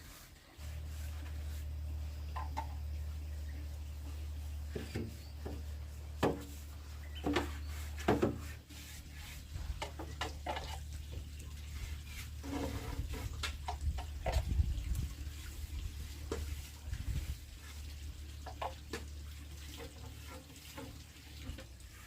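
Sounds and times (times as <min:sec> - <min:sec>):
light knocks and clatters: 0:04.7 - 0:08.6.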